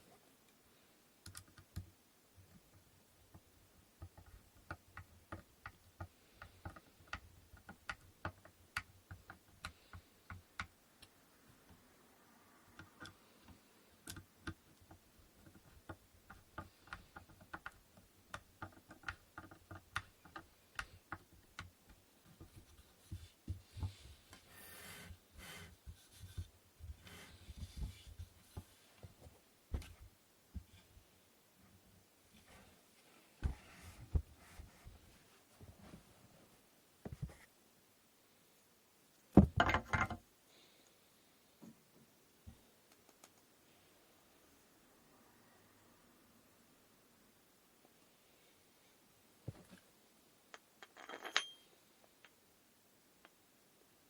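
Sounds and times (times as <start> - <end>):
wooden parts clicking and tapping: 1.2 - 11.8, 12.7 - 31.0, 39.3 - 40.2.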